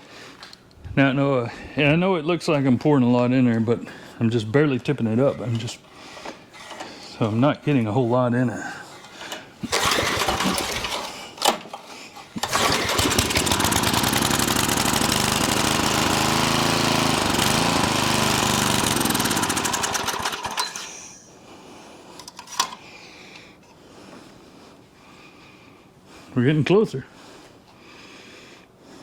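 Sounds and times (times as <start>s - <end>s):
small engine running: 9.6s - 11.1s, 12.4s - 20.9s.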